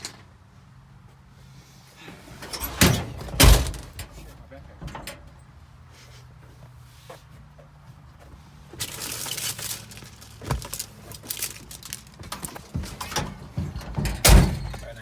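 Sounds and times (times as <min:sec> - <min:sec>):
crinkling and rustling: 0:06.6 - 0:15.0.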